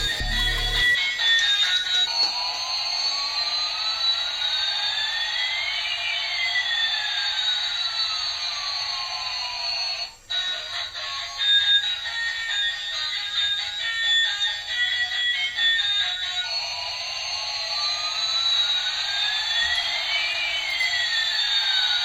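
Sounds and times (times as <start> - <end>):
electronic sweeping tones: 0.0 - 1.0
music: 0.0 - 22.0.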